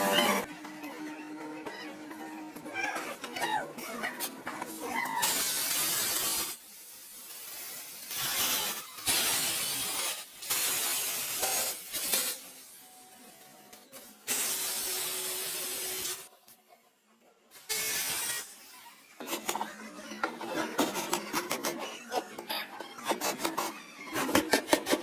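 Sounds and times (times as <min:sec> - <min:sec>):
hissing spray bursts: 0:05.2 - 0:12.8, 0:14.2 - 0:16.3, 0:17.6 - 0:18.8.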